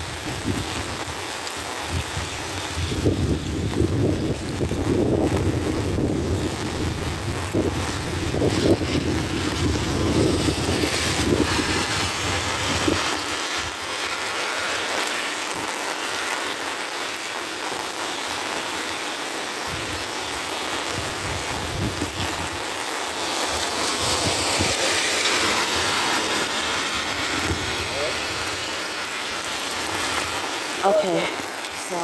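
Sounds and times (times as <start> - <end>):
wind buffeting microphone: 0.0 - 1.2, 1.8 - 13.9, 20.9 - 22.6, 23.4 - 29.1
rain falling on wet pavement: 0.0 - 32.0.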